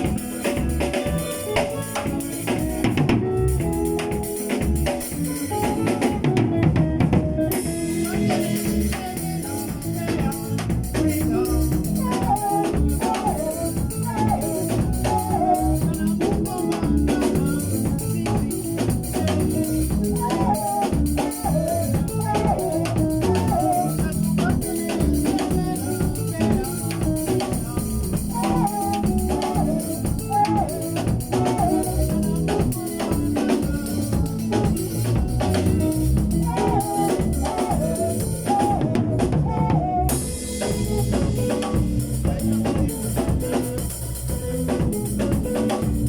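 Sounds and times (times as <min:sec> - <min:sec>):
drum kit beat: 0:00.0 - 0:46.0
melodic instrument line: 0:40.1 - 0:46.0.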